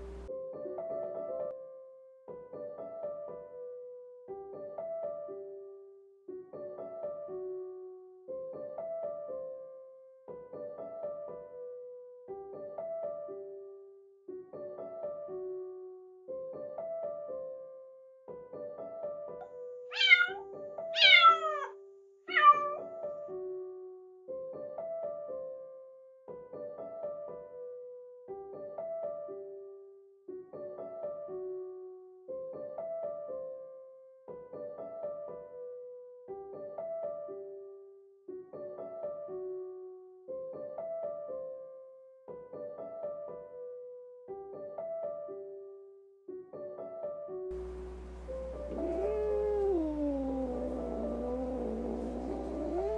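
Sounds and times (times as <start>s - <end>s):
gentle piano music: 0.0s - 21.6s, 22.5s - 52.9s
kitten meowing: 19.9s - 22.9s, 48.3s - 52.9s.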